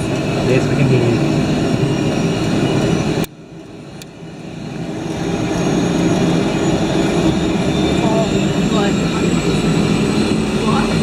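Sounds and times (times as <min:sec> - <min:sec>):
helicopter engine whine and rotor drone: 0:00.0 - 0:11.0.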